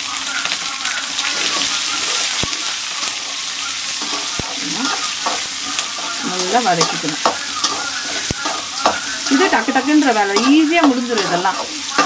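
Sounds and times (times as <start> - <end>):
onions sizzling in hot oil: 0.0 - 12.0
metal spatula stirring: 4.0 - 12.0.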